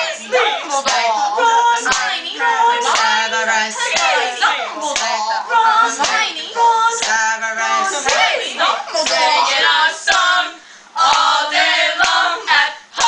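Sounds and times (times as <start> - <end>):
girls chanting and singing: 0.0 - 13.0
hand claps: 0.8 - 1.0, 12.0 - 12.2.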